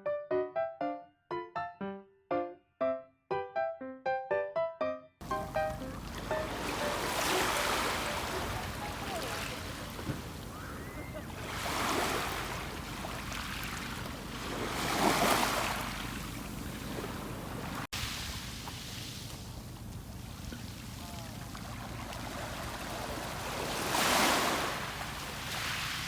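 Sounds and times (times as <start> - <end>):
sea waves washing in: 5.2 - 26.0.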